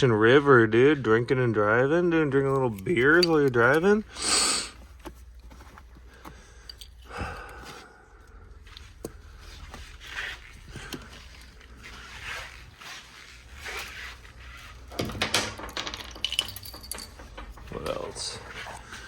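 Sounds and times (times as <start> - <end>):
hands rummaging small parts: 2.5 - 4.1, 4.8 - 7.7, 13.6 - 19.0
clattering clicks and rattles: 14.9 - 18.4.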